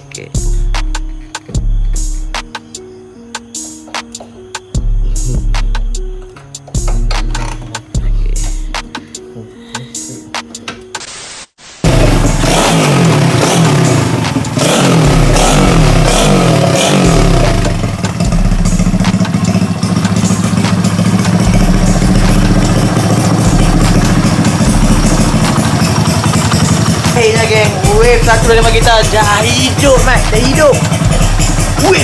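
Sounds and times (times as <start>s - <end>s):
motorcycle engine revving: 4.8s - 8.9s, 11.8s - 32.0s.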